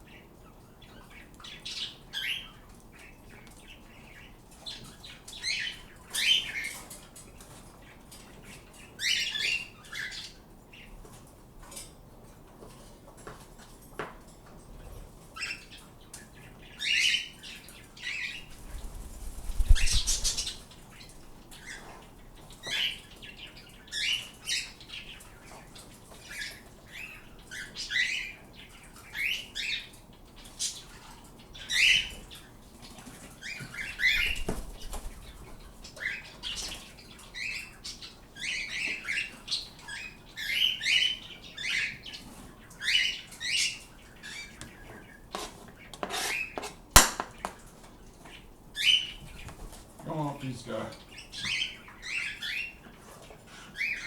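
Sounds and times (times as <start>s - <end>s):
birds chirping and squawking: 14.8s - 47.6s, 48.2s - 49.6s, 50.4s - 54.0s.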